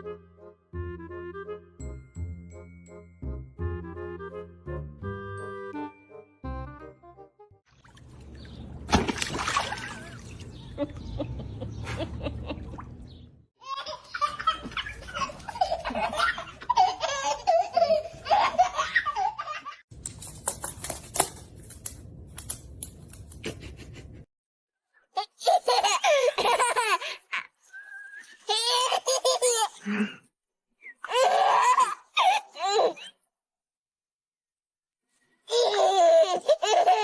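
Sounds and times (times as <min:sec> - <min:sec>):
people laughing: 0:10.8 - 0:12.7.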